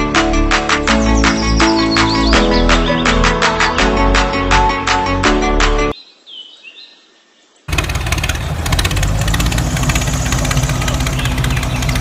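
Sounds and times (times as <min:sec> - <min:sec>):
small engine chattering: 0:07.7 - 0:12.0.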